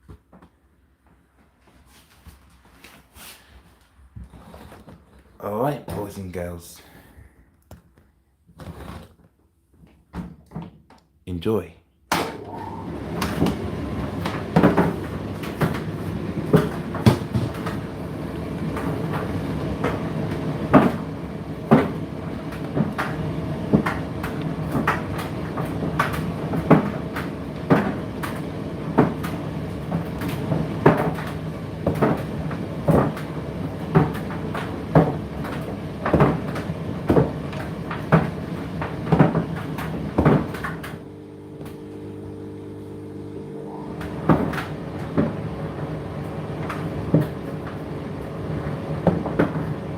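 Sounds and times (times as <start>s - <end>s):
tumble dryer hum: 12.2s - 49.9s.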